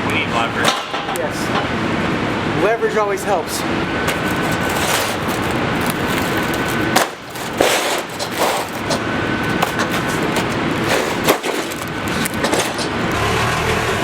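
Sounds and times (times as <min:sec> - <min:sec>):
sheet metal rattling: 0:04.1 - 0:13.1.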